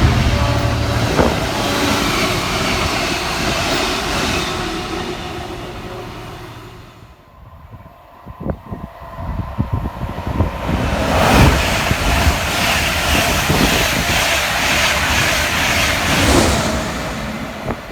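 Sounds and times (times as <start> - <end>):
low thumps: 0.0 - 3.7
train rushing past: 0.0 - 7.7, 8.9 - 17.9.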